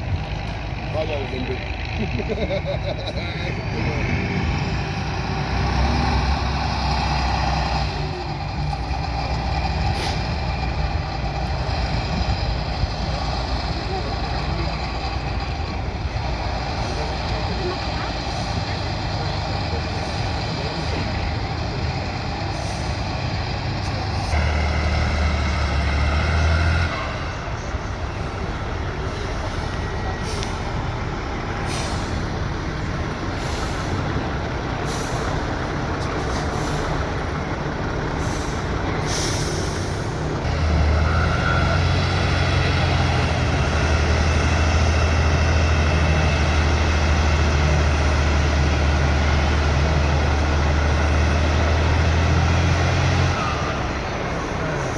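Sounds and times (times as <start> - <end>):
diesel truck engine under load: 0.0 - 54.9
short air hisses: 38.2 - 40.2.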